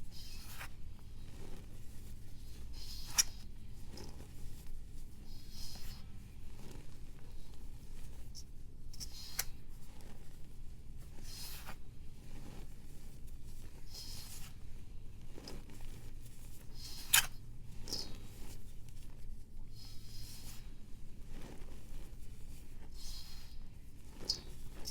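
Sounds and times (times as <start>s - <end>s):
dry scraping strokes: 19.8s - 24.9s.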